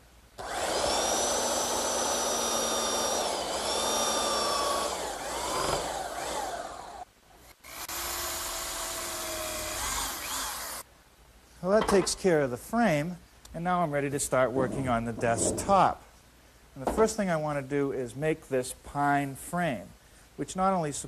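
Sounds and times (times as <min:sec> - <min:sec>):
belt sander grinding wood: 0:07.7 - 0:10.8.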